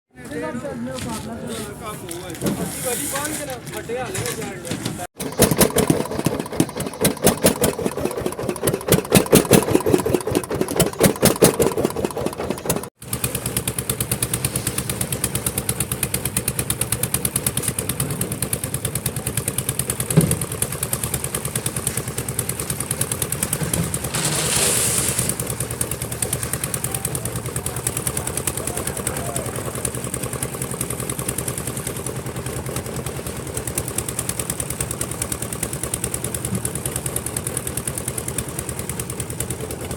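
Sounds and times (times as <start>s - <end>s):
concrete mixer engine knocking: 4.7s - 24.6s, 25.4s - 39.9s
short hiss: 24.0s - 25.5s.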